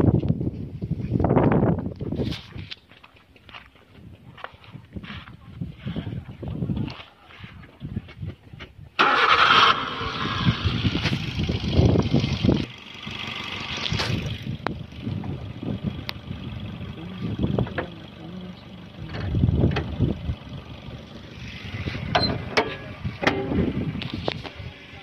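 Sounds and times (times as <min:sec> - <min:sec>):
wind on microphone: 0:00.0 - 0:02.7, 0:04.7 - 0:09.0, 0:10.2 - 0:12.7, 0:13.8 - 0:17.8, 0:19.0 - 0:20.5, 0:21.4 - 0:24.7
car engine idling: 0:09.0 - 0:25.0
car bonnet shutting: 0:22.0 - 0:23.8.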